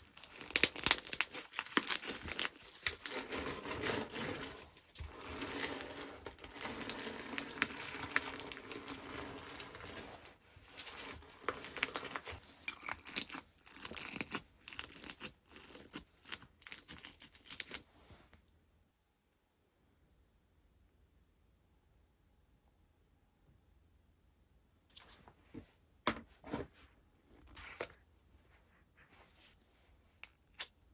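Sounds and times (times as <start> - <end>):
slime crackling: 0.0 - 17.8.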